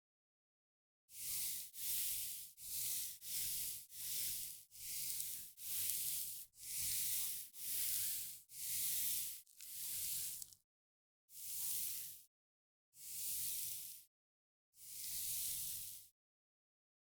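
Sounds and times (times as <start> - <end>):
hissy brushing strokes: 1.9 - 10.6.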